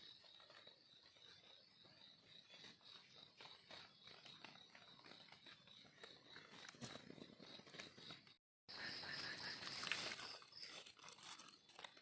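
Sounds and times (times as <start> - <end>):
insect trill: 0.0 - 12.0
dry leaves rustling: 9.5 - 12.0.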